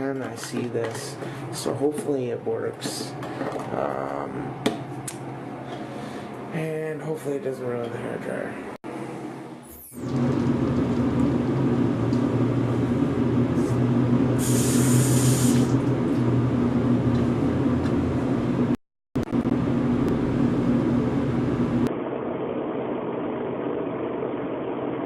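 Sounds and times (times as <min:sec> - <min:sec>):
hairdryer blowing: 0:12.2 - 0:16.0
brief hiss: 0:14.4 - 0:15.7.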